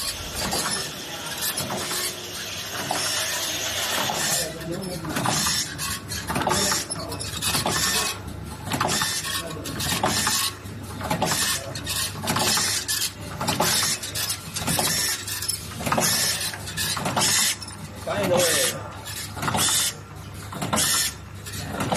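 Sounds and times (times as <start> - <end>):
steady low machine hum: 0.0 - 21.9.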